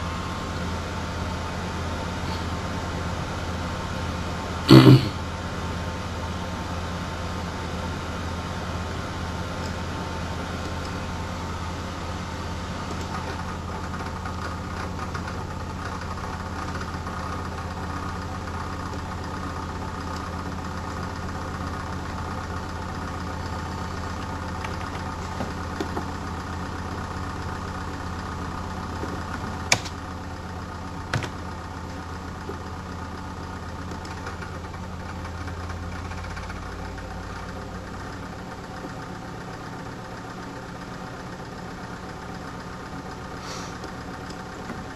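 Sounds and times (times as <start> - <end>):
computer cooler fan droning: 0.0 - 44.9.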